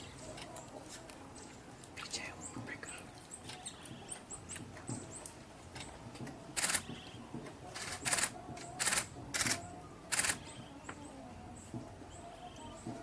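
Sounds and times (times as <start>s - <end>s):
camera shutter bursts: 6.6s - 7.1s, 7.8s - 10.4s.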